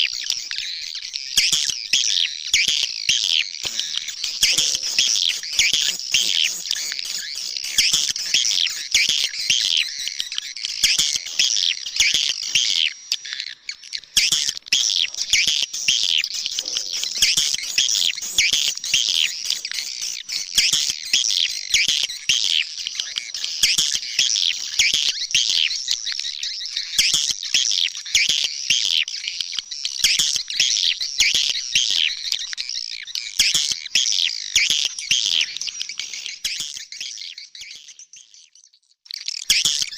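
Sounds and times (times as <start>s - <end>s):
swiftlets twittering: 3.6s - 12.6s, 14.2s - 22.3s.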